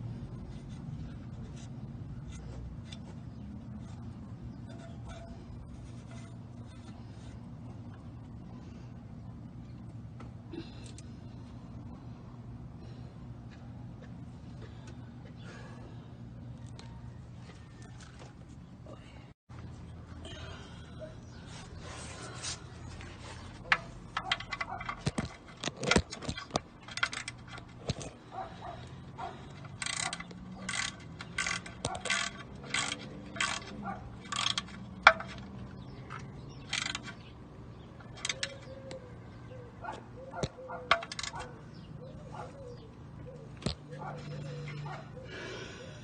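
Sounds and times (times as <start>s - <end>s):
metal tools clinking on car parts: 23.6s - 37.3s, 38.0s - 38.9s, 40.7s - 41.5s.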